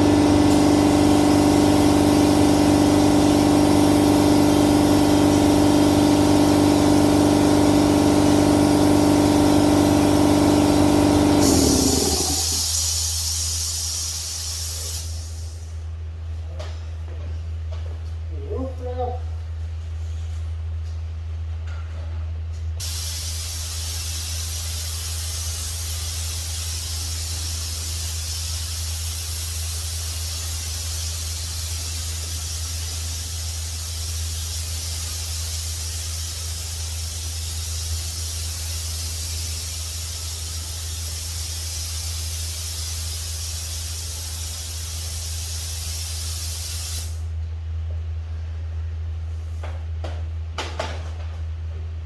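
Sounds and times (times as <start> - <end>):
spray gun hissing: 0.0 - 15.6, 22.8 - 47.2.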